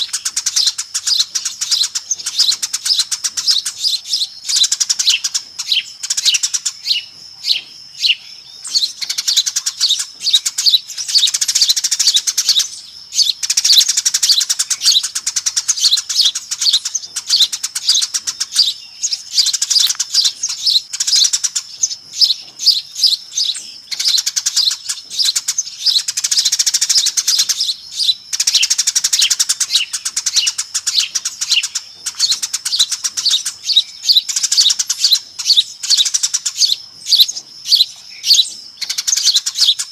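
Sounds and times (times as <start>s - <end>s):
flock of sparrows chirping: 0.0s - 39.9s.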